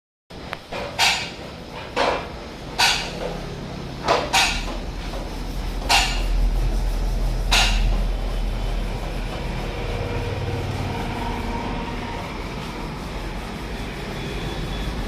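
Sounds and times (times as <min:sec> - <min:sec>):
sharp metal clanks: 0:00.7 - 0:03.4, 0:04.1 - 0:04.8, 0:05.8 - 0:06.4, 0:07.5 - 0:08.0.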